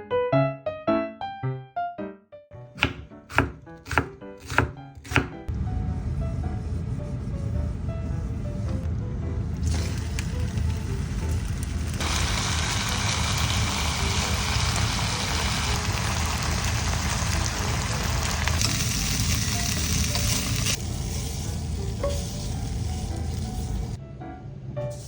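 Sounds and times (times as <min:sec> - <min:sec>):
meat sizzling in a frying pan: 0:09.6 - 0:24.0.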